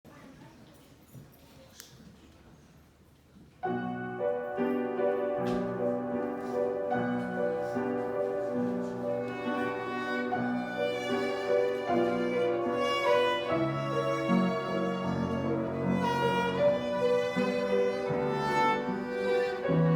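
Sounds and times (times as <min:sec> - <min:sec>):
piano accompaniment: 0:03.6 - 0:19.9
violin melody: 0:06.8 - 0:19.9.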